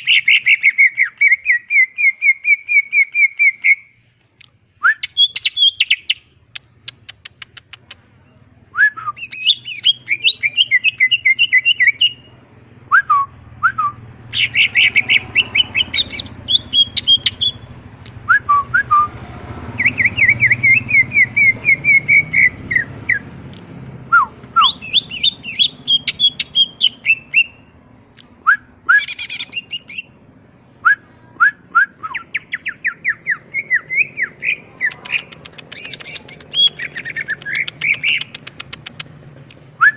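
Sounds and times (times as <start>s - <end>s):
bird singing trills and whistles: 0.0s - 3.9s, 4.8s - 6.2s, 6.9s - 17.7s, 19.8s - 23.3s, 24.1s - 27.7s, 28.4s - 39.1s.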